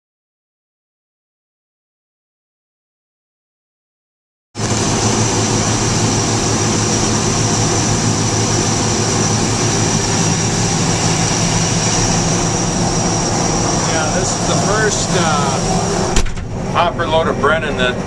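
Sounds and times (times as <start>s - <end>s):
combine harvester running: 4.6s - 18.0s
high-pitched machinery whine: 4.6s - 18.0s.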